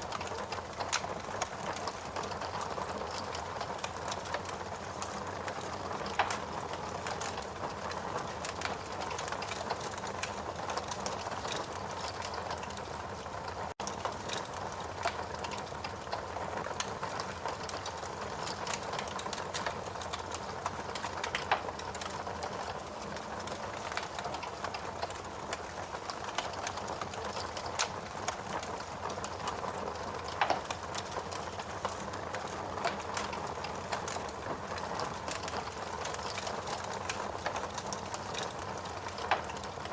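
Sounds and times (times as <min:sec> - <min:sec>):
fire hissing and crackling: 0:00.0 - 0:39.9
fire pops: 0:00.1 - 0:12.8, 0:13.8 - 0:39.9.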